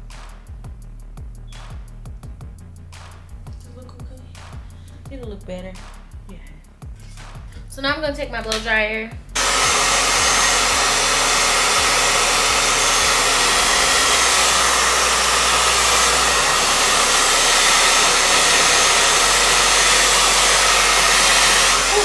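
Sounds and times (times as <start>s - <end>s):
blow dryer running: 9.4s - 22.0s.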